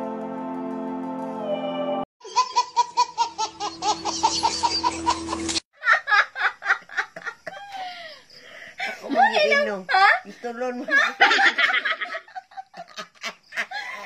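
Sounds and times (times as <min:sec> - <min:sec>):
baby laughing: 0:02.2 - 0:05.6
women laughing: 0:02.2 - 0:09.4, 0:10.6 - 0:14.0.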